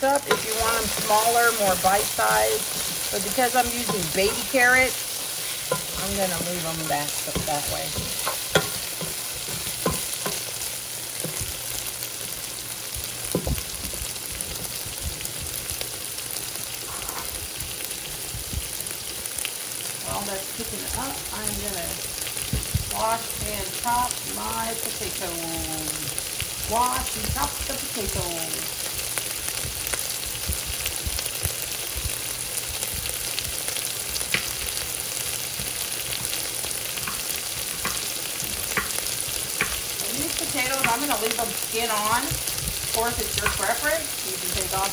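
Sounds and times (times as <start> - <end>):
vegetables sizzling in a pan: 0.0 - 44.9
stirring utensil knocks: 0.1 - 4.9, 5.6 - 10.5, 37.0 - 42.4.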